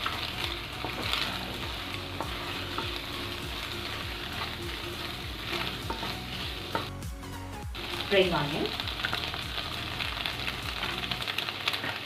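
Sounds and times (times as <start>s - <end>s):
food sizzling in hot oil: 0.0s - 12.0s
spatula scraping pan: 0.8s - 6.9s.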